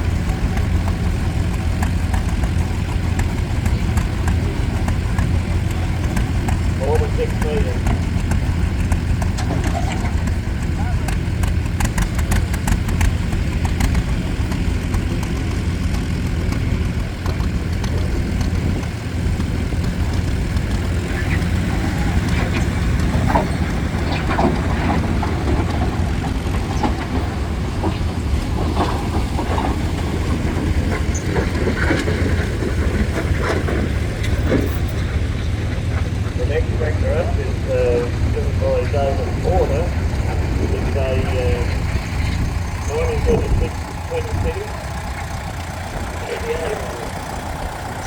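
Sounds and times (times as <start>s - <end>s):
tractor engine running: 0.0s - 48.0s.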